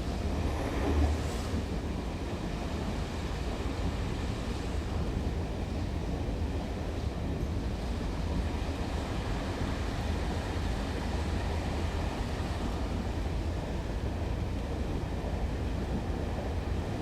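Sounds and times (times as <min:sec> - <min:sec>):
low rumble of diesel trains: 0:00.0 - 0:17.0.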